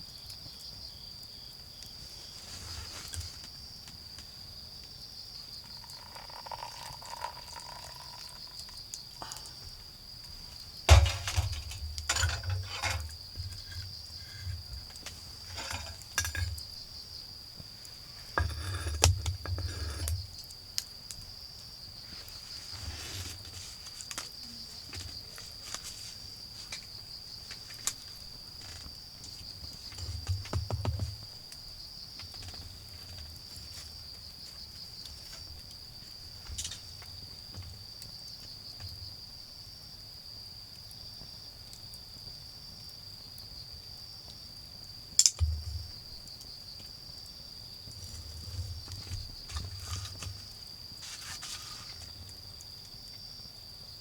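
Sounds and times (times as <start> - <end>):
crickets trilling: 0.0 - 54.0
fire crackling and knocking: 10.9 - 20.7, 30.0 - 31.2.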